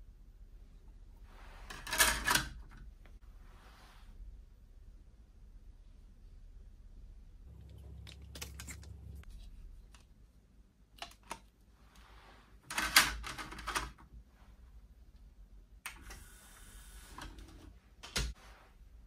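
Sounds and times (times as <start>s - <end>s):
low steady hum: 2.6s - 12.2s.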